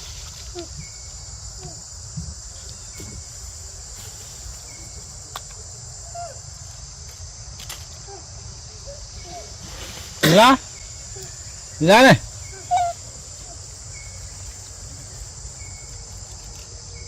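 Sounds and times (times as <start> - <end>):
faint squeaks and chirps: 0.0 - 5.2, 10.8 - 17.0
insect chorus buzzing: 0.0 - 17.0.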